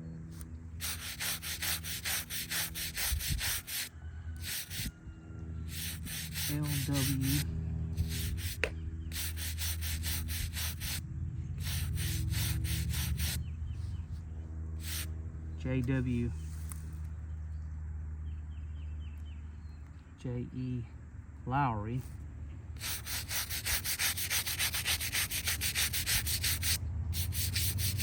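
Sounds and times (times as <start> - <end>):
steady low hum: 0.0 - 28.0
headstone being scrubbed by hand: 0.8 - 4.9, 5.7 - 11.0, 11.6 - 13.4, 14.8 - 15.1, 22.8 - 28.0.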